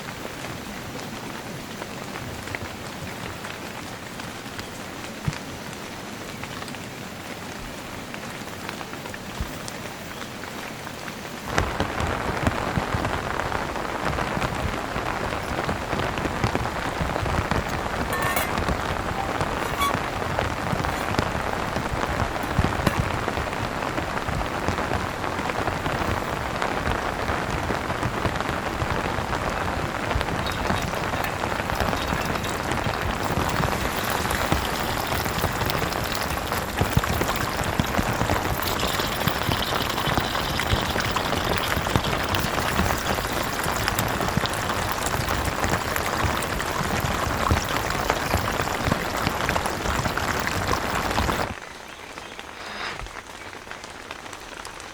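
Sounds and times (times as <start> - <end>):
heavy rain falling: 0.0 - 38.6, 39.3 - 54.9.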